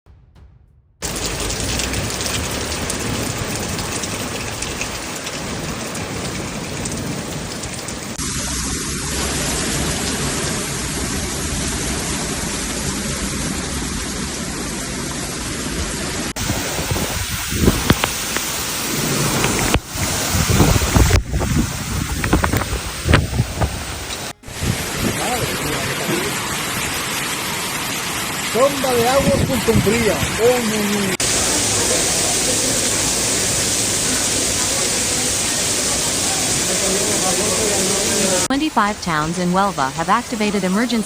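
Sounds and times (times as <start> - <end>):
heavy rain pouring: 1.0 - 41.0
wind gusts buffeting microphone: 16.4 - 26.5, 29.0 - 30.6.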